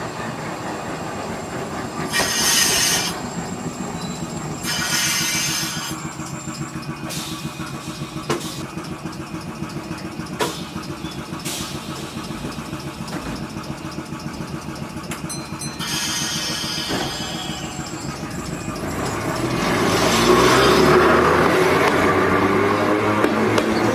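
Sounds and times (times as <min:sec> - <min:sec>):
tram mechanical chugging: 0:00.0 - 0:23.9.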